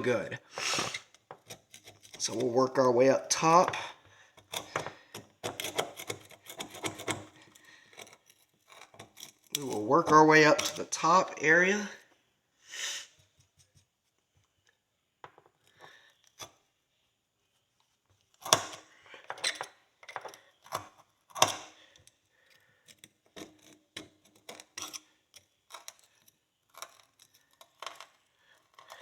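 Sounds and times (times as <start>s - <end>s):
hand pick scraping a horseshoe: 0.5s - 11.6s, 18.4s - 29.0s.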